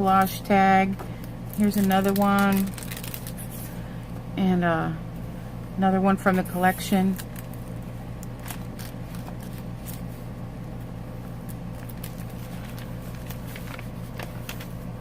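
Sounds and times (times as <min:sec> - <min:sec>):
steady low hum: 0:00.0 - 0:15.0
paper rustling: 0:01.6 - 0:03.8, 0:08.3 - 0:10.0, 0:11.7 - 0:14.9.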